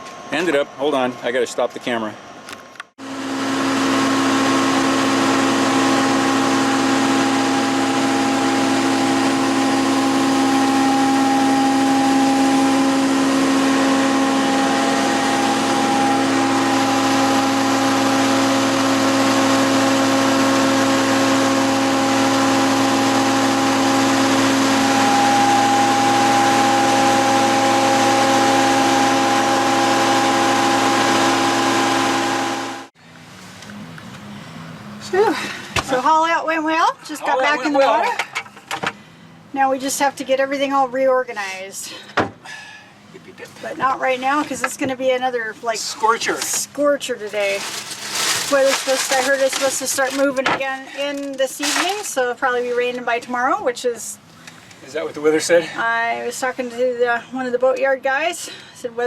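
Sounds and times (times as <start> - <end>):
machine engine whining: 3.0 - 39.1, 43.0 - 52.4.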